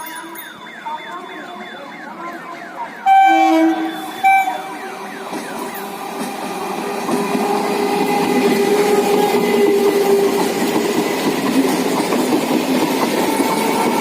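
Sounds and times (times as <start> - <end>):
train running noise: 0.0 - 14.0
electric train horn: 3.0 - 5.2, 13.3 - 14.0.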